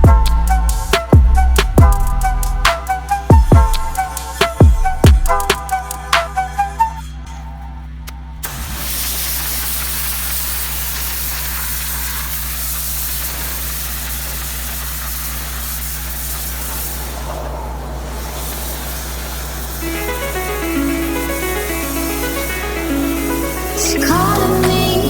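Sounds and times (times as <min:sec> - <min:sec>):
water spray hissing: 0:00.0 - 0:06.8, 0:08.4 - 0:25.0
pressure washer running: 0:00.0 - 0:06.9, 0:08.4 - 0:25.0
music: 0:00.0 - 0:07.8, 0:19.8 - 0:25.0.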